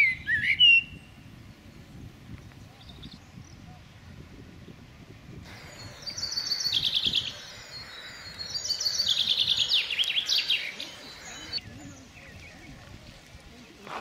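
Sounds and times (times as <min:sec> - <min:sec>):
songbird singing high notes: 0:05.5 - 0:12.8.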